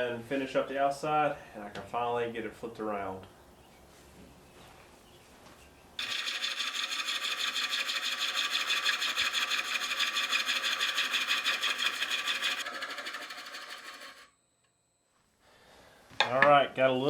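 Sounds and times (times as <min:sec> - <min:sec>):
gouge cutting wood on lathe: 0:06.0 - 0:14.3.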